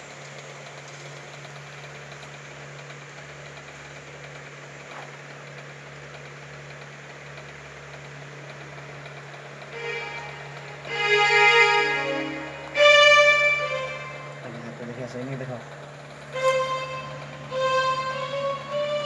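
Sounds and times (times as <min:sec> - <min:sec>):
steady low hum: 0:07.7 - 0:19.0.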